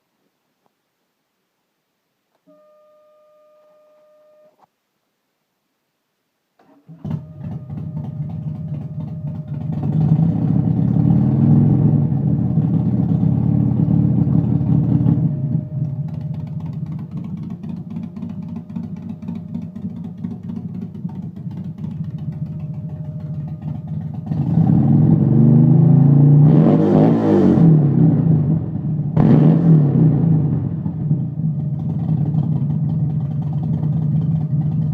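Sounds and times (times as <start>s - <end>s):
motorcycle engine revving and idling: 7.0s - 34.9s.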